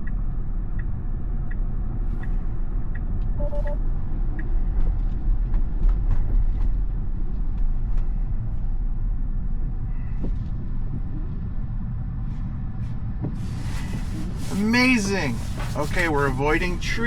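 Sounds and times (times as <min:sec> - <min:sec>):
turn signal ticking: 0:00.0 - 0:03.8
road and wind rumble in car cabin: 0:00.0 - 0:17.0.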